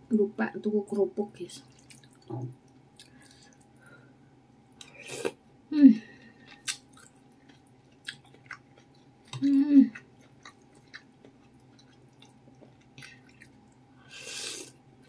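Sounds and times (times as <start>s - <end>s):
person chewing with wet clicks: 1.6s - 3.7s, 6.2s - 13.8s
person humming mmm: 9.4s - 10.0s.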